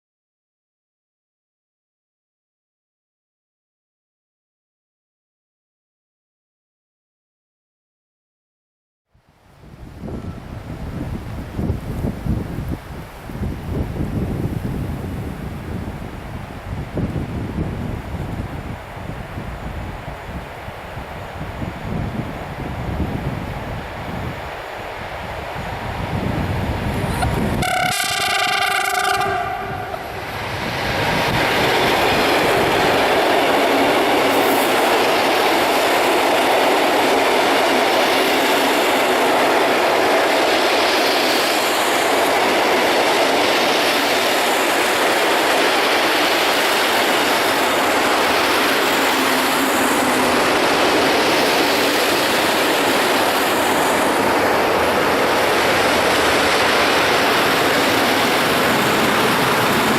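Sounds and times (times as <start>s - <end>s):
train wheels rolling on rails: 10.0s - 59.9s.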